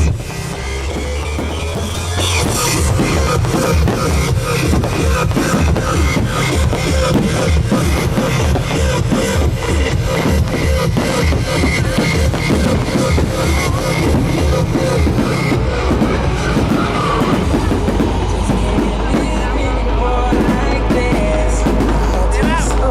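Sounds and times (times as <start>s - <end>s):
loud music: 0.0s - 22.9s
steady drum beat: 0.0s - 22.9s.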